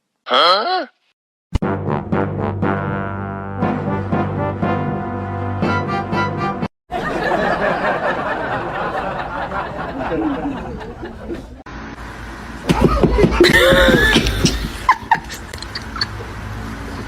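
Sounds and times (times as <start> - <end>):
people laughing: 6.9 - 11.6, 12.7 - 16.2.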